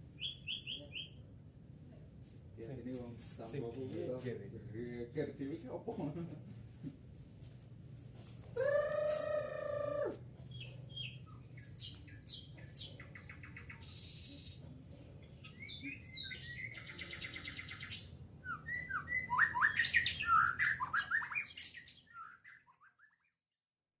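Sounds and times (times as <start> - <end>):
bird singing: 0.1 - 1.2, 8.6 - 23.4.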